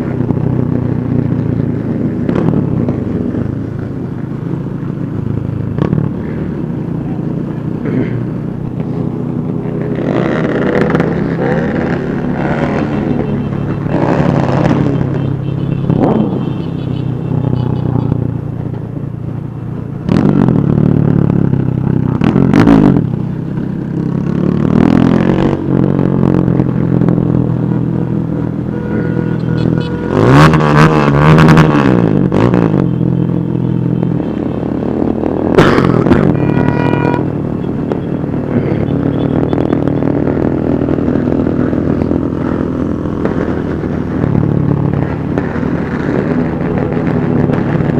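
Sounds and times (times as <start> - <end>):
motorcycle engines revving: 0.0 - 47.9.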